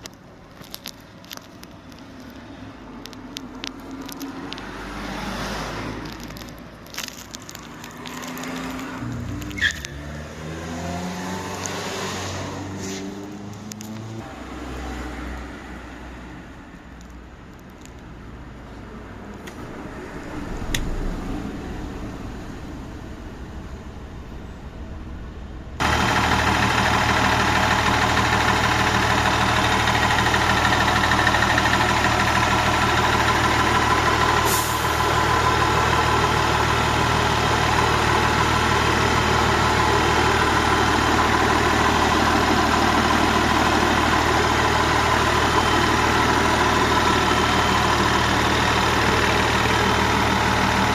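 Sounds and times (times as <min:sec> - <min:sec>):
bus engine idling: 0:18.3 - 0:50.9.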